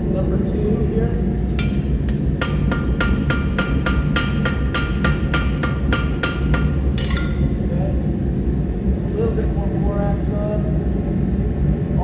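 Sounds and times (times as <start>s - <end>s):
hammer striking steel on anvil: 1.6s - 7.7s.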